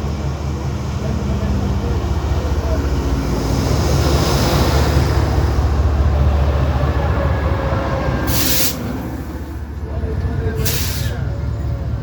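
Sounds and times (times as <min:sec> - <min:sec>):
train rumbling: 0:00.0 - 0:12.0
short sharp hiss: 0:08.3 - 0:08.9, 0:10.6 - 0:11.2.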